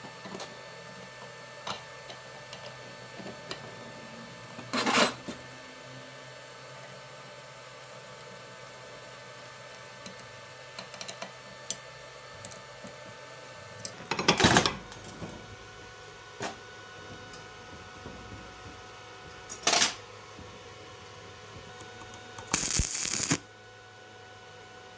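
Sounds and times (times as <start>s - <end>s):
clattering bursts: 21.8s - 23.4s
clicks and clinks of tools: 21.8s - 23.4s.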